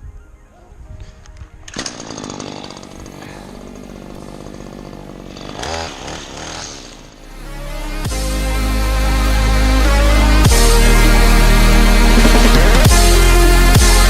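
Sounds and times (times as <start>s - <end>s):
music: 0.0s - 1.8s, 7.2s - 14.0s
small petrol engine running: 1.7s - 7.3s, 12.0s - 13.2s.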